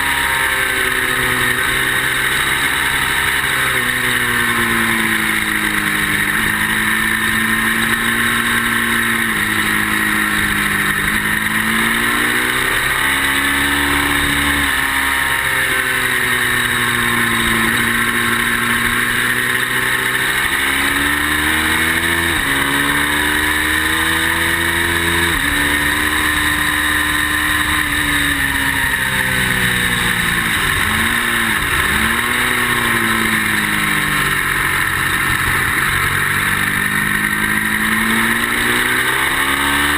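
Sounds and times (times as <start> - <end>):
motorcycle engine at speed: 0.0 - 39.9.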